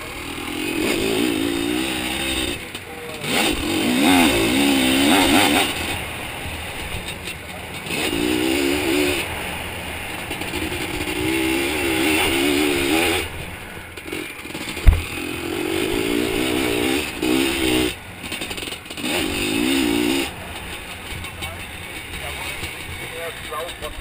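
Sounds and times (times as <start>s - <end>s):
two-stroke engine revving: 0.0s - 24.0s
sharp thump: 14.8s - 15.2s.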